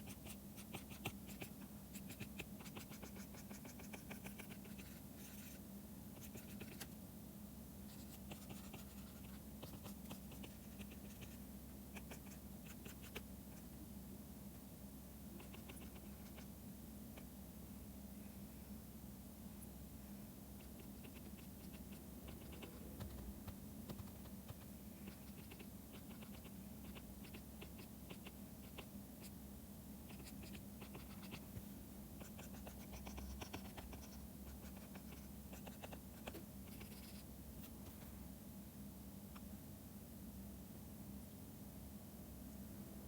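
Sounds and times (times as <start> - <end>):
stylus pen on drawing tablet: 0.0 - 5.6, 6.2 - 6.9, 7.9 - 11.4
low steady hum: 0.0 - 43.0.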